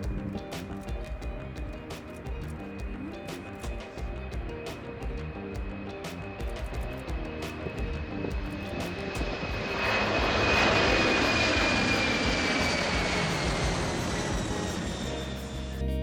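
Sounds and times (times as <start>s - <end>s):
high whine falling in pitch: 0.0s - 16.0s
jet airplane passing overhead: 6.7s - 16.0s.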